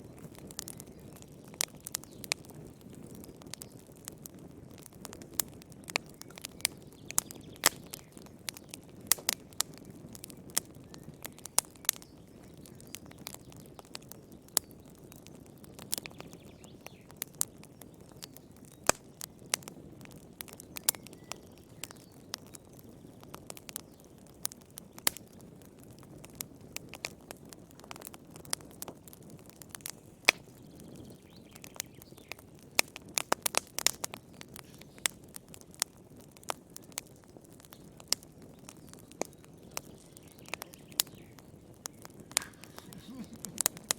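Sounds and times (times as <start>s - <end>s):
wood fire crackling and popping: 0.0s - 43.9s
low steady fire rush: 34.5s - 43.9s.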